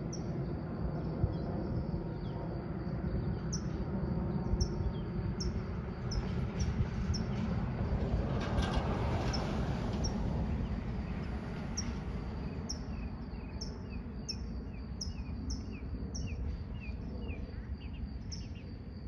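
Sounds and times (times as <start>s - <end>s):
low outdoor rumble: 0.0s - 19.0s
bird chirping: 12.7s - 18.7s.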